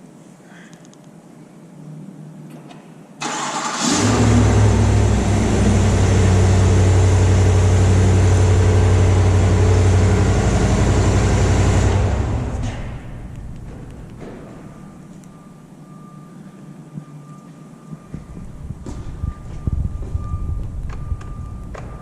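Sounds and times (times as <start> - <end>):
car engine revving and idling: 3.4 - 13.7.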